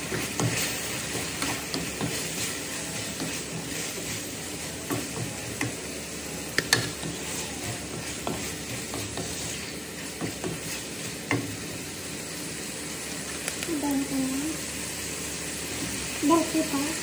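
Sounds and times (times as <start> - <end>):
spatula scraping and knocking pan: 0.0 - 4.2, 6.6 - 11.6
food sizzling in a frying pan: 0.0 - 17.0.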